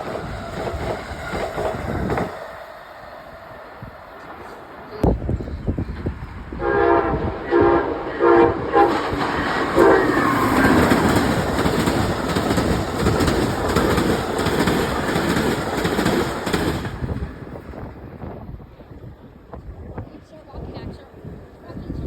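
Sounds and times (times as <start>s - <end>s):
train rushing past: 0.0s - 22.0s
train horn blasts: 6.5s - 11.1s.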